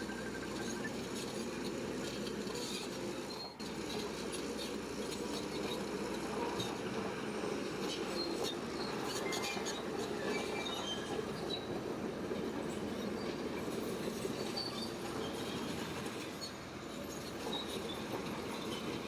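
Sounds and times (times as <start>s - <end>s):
bulldozer engine rumble: 0.0s - 19.0s
metallic squeaks and clinks: 8.1s - 11.7s, 14.4s - 18.8s.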